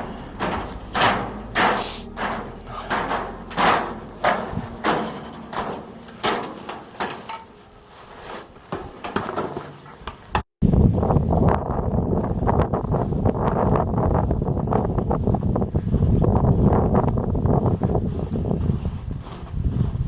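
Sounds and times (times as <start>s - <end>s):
footsteps crunching in snow: 0.0s - 10.3s, 17.4s - 20.0s.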